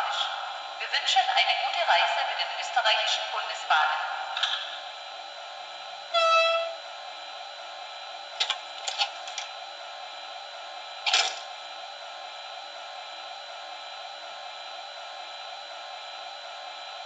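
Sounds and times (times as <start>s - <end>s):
short single tone: 6.1s - 6.8s
sharp clicks and clunks: 8.4s - 9.5s.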